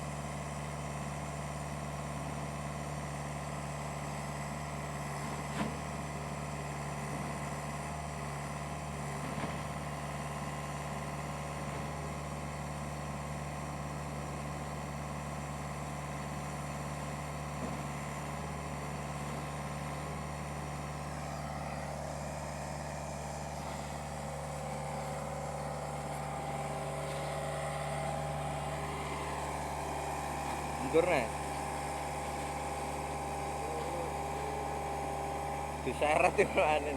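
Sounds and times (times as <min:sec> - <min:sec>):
heavy engine idling: 0:00.0 - 0:36.9.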